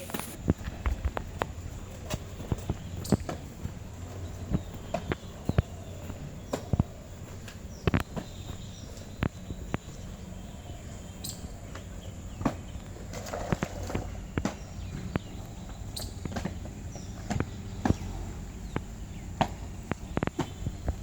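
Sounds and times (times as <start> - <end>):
footsteps: 0.0 - 10.1.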